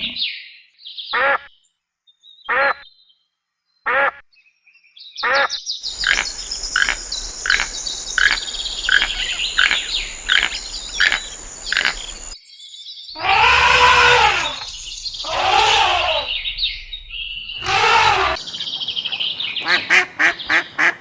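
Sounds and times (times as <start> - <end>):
steady hiss: 5.8 - 12.4, 13.3 - 21.0
short animal calls: 13.2 - 16.6, 17.6 - 21.0.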